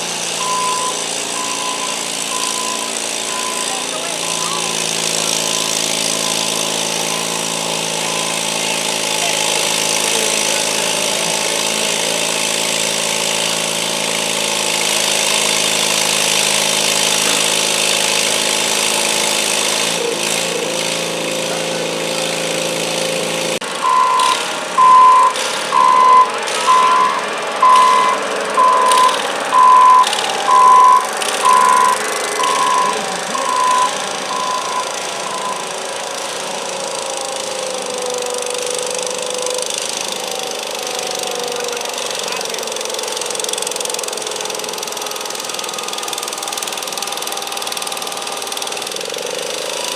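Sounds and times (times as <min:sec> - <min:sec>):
garden tractor engine running: 0:00.0 - 0:49.9
electronic warning beeper: 0:00.4 - 0:04.8, 0:23.8 - 0:35.7.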